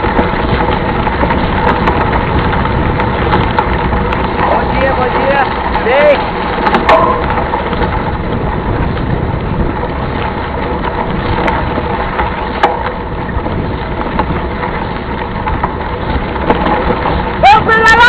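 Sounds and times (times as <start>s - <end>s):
sharp knocks or rattles: 0.0s - 8.3s
wind buffeting microphone: 0.0s - 18.0s.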